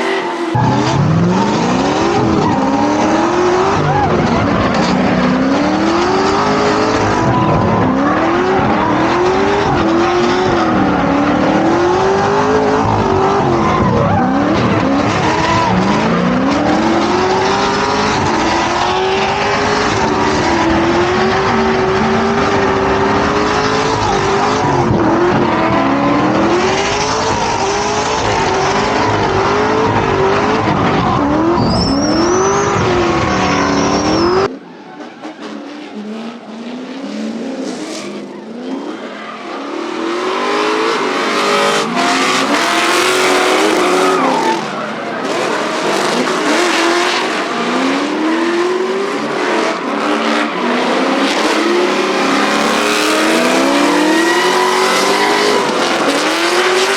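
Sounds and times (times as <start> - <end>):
car engines revving: 0.0 - 56.9
tyres squealing: 0.3 - 36.0.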